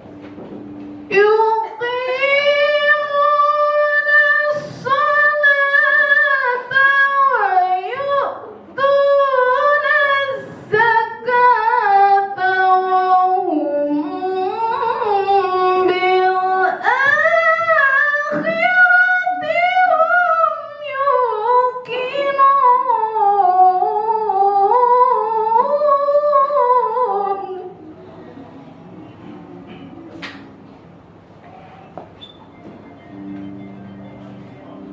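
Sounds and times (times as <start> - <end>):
woman reciting melodically: 1.1 - 28.4.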